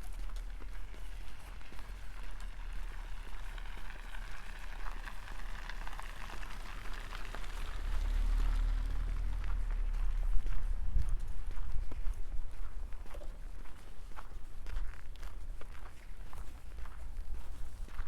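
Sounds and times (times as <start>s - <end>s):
footsteps crunching on frozen snow: 0.0s - 18.0s
steady low rumble: 7.5s - 13.6s.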